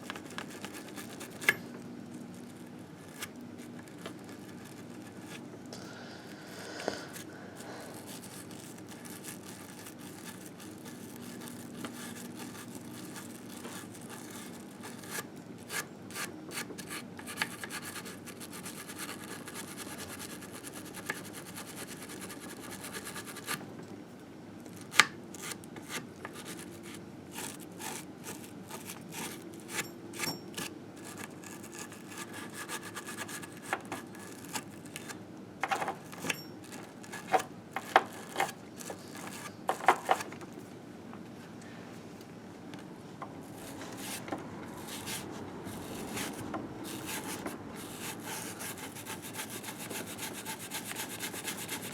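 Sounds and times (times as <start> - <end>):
scrubbing grime off metal: 44.8 - 51.9.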